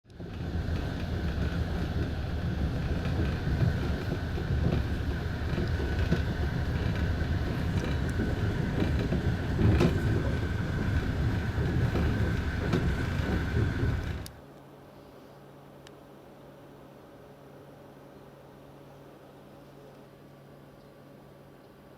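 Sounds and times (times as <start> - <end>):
train wheels rumbling on rails: 0.1 - 14.4.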